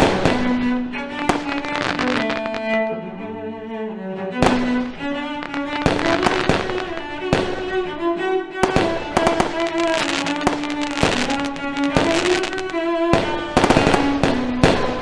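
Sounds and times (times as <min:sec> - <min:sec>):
fireworks bangs: 0:00.0 - 0:00.6, 0:01.2 - 0:02.6, 0:04.4 - 0:07.9, 0:08.6 - 0:15.0
violin and cello music: 0:00.0 - 0:15.0.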